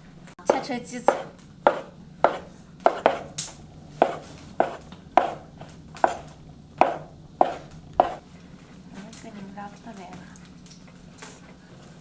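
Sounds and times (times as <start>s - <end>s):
knife cutting dough: 0.4s - 8.2s
knife knocking on cutting board: 0.5s - 3.3s, 4.0s - 5.4s, 6.0s - 8.2s.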